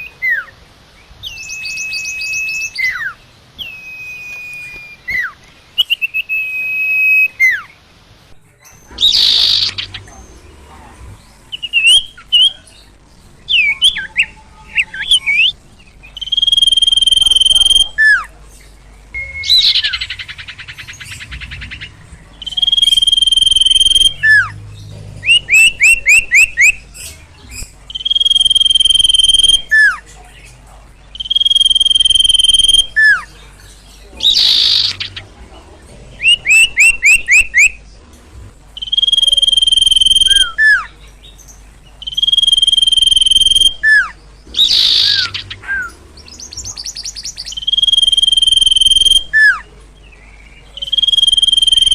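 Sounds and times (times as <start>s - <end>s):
bird whistling and chirping: 1.2s - 7.7s, 16.2s - 18.2s, 19.2s - 24.6s, 25.2s - 30.0s, 31.1s - 33.3s, 34.2s - 35.2s, 36.2s - 37.8s, 38.8s - 40.9s, 42.0s - 49.7s, 50.7s - 51.9s.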